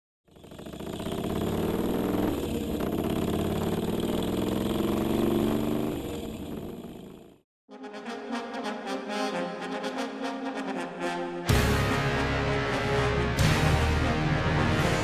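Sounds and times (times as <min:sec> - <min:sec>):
motorcycle engine running: 0:00.2 - 0:07.4.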